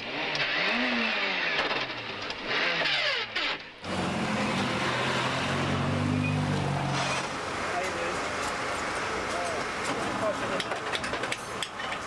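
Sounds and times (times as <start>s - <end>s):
rally car engine revving: 0.0s - 7.4s
road hiss: 3.8s - 10.6s.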